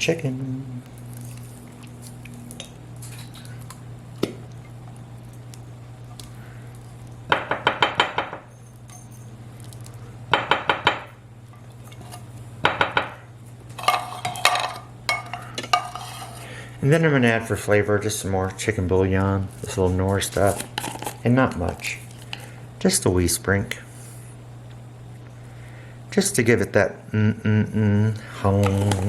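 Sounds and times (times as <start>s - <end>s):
steady low hum: 0.0s - 29.0s
metal spoon scraping a can: 15.7s - 16.5s.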